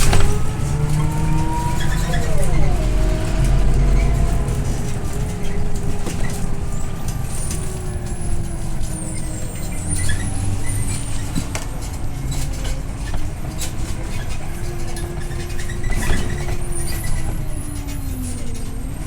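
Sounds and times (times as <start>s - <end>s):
whine sliding in pitch: 0.0s - 11.4s
bus engine and road rumble: 0.0s - 19.0s.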